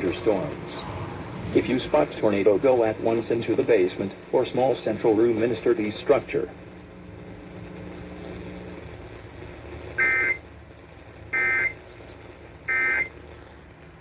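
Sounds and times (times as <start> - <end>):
screechy two-tone digital data bursts: 10.0 - 10.4, 11.3 - 12.0, 12.6 - 13.2.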